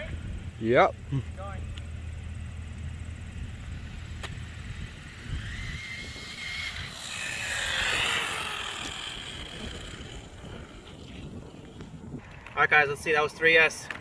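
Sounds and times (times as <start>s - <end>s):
rc car motor whine: 1.4s - 11.7s.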